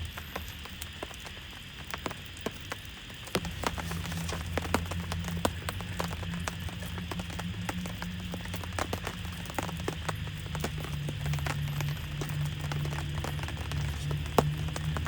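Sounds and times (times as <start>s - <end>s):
rain falling: 0.0s - 15.0s
raindrops ticking on surface: 0.0s - 15.0s
low steady tones: 1.8s - 15.0s.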